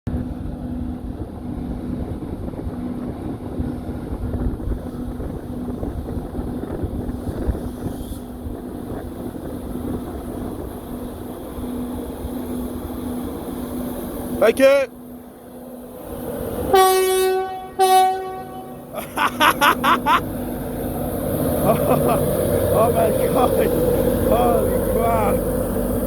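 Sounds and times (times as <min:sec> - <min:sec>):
wind on microphone: 0:00.1 - 0:13.5
pulsing hum: 0:00.1 - 0:26.0
train rumbling: 0:00.1 - 0:26.0.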